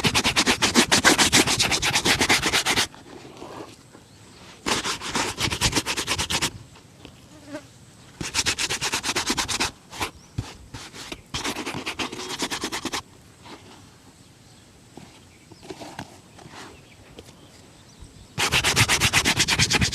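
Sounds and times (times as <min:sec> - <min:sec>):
shoe being buffed by hand: 0:00.0 - 0:02.9, 0:04.7 - 0:06.5, 0:08.2 - 0:13.0, 0:18.4 - 0:19.9.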